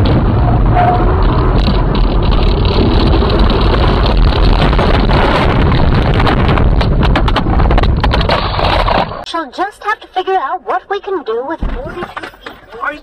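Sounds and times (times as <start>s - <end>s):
wind buffeting microphone: 0.0s - 8.4s
loud vehicle rumble: 0.0s - 9.3s
clicks and knocks: 1.2s - 9.3s.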